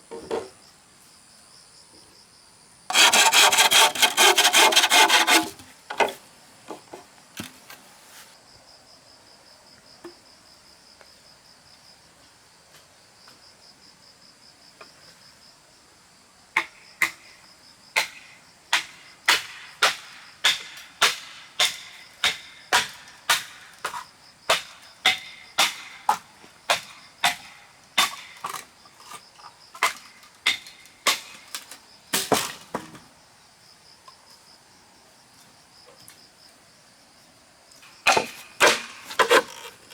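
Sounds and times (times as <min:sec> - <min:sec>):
short rasp: 0:02.9 - 0:06.2.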